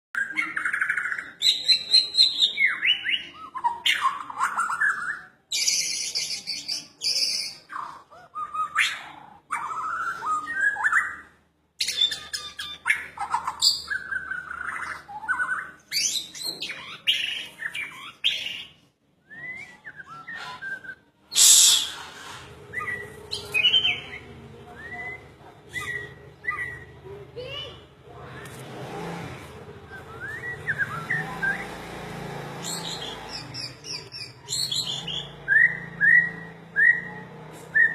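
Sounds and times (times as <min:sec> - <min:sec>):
songbird singing varied whistles: 0:11.8 - 0:26.9, 0:29.8 - 0:31.9, 0:32.6 - 0:37.9.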